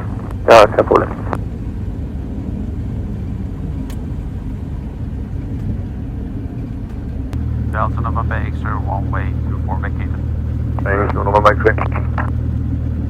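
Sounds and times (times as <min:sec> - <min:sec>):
light aircraft engine rumble: 0:00.0 - 0:13.0.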